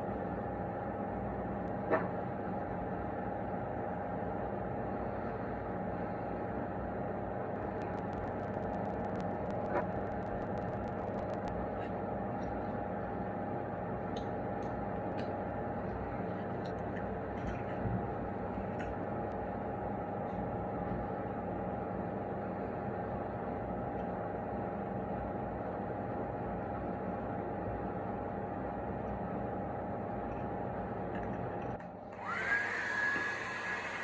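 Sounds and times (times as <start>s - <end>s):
small motor humming: 32.1s - 34.0s.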